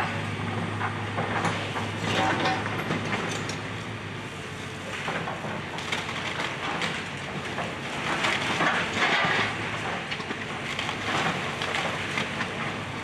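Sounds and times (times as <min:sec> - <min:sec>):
excavator engine hum: 0:00.0 - 0:13.0
wood cracking and splintering: 0:05.0 - 0:12.8.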